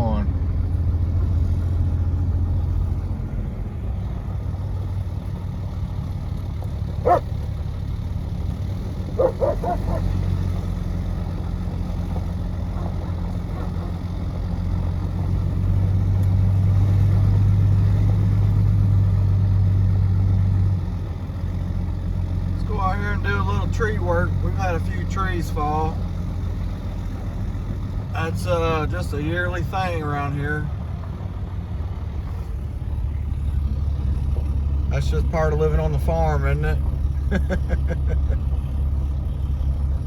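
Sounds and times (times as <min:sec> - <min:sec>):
vehicle engine running: 0:00.0 - 0:40.0
dog barking: 0:07.0 - 0:07.3, 0:09.2 - 0:10.2, 0:12.7 - 0:14.0.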